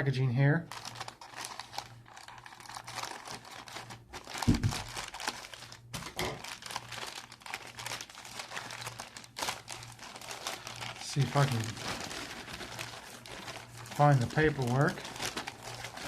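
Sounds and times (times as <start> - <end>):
faint steady hum: 0.0 - 16.0
packaging crinkling and rustling: 0.7 - 16.0
thump: 4.5 - 4.7.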